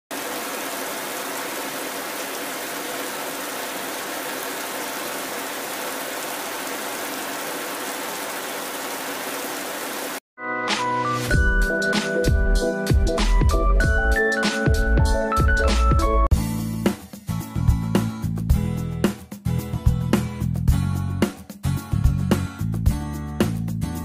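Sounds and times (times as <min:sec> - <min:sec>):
car wash spray and brushes: 0:00.1 - 0:10.2
music: 0:10.4 - 0:24.0.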